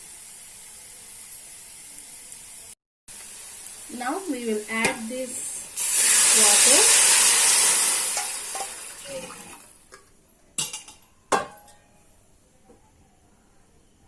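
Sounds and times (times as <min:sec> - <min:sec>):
onions sizzling in a pan: 0:00.0 - 0:09.8
water poured into pan: 0:05.8 - 0:09.7.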